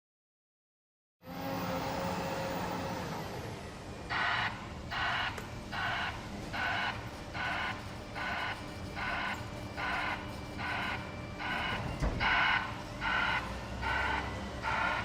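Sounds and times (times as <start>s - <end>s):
diesel engine running: 1.2s - 15.0s
reversing alarm beeping: 4.1s - 15.0s.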